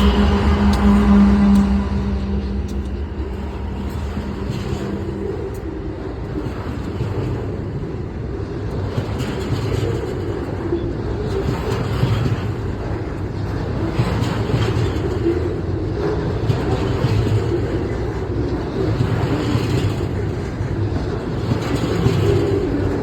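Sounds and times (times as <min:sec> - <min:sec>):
freight train wheels clattering on rail: 0:00.0 - 0:23.0.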